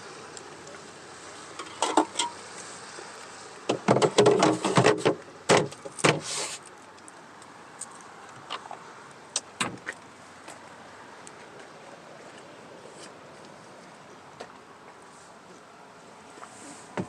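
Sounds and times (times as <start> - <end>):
short rustle: 6.1 - 6.7.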